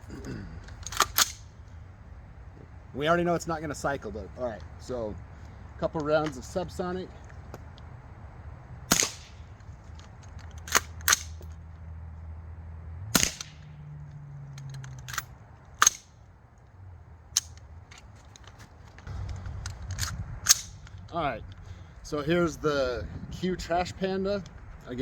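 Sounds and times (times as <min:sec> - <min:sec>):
suppressed rifle shots: 0:08.9 - 0:09.5, 0:13.1 - 0:13.7, 0:15.8 - 0:16.1, 0:20.4 - 0:20.9.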